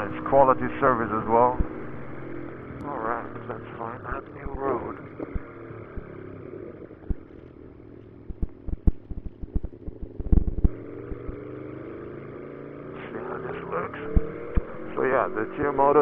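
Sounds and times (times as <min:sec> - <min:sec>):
motorcycle engine running: 0:00.0 - 0:16.0
sharp clicks and knocks: 0:04.4 - 0:06.1, 0:08.3 - 0:11.4, 0:14.1 - 0:14.8.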